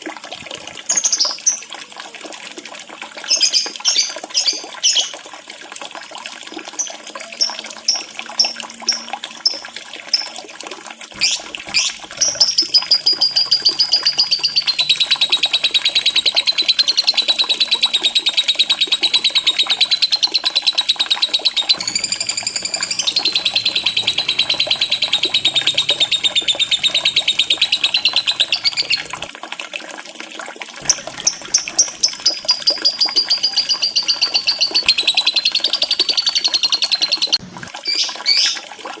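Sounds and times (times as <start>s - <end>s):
running water trickling: 0.0s - 39.0s
lovebird chirping and trilling: 11.2s - 29.3s, 30.8s - 38.6s.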